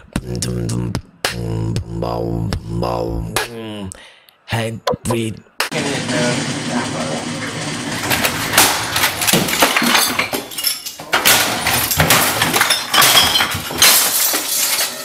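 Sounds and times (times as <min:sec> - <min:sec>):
objects crashing and smashing: 0:08.0 - 0:15.0
glass clinking and breaking: 0:08.6 - 0:15.0.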